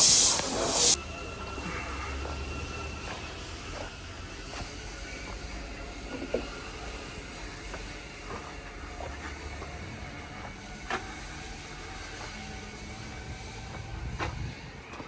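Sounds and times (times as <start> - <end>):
faint hiss: 0.0 - 1.0.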